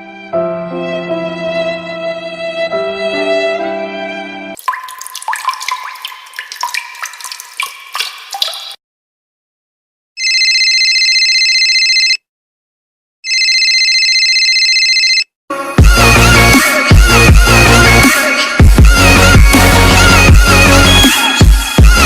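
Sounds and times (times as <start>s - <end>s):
water dripping in pitched plinks: 4.6s - 8.8s
telephone ringing: 10.2s - 12.2s, 13.3s - 15.3s.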